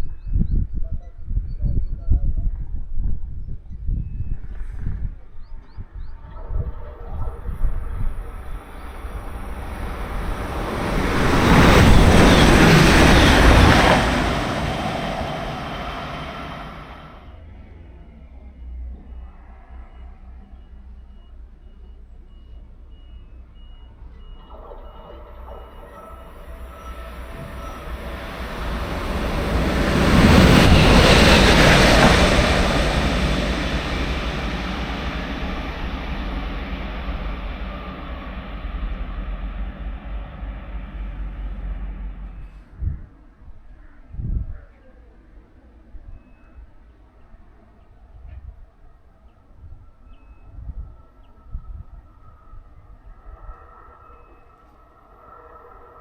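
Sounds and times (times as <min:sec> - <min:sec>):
train passing at speed: 0:06.3 - 0:20.7, 0:24.4 - 0:43.1.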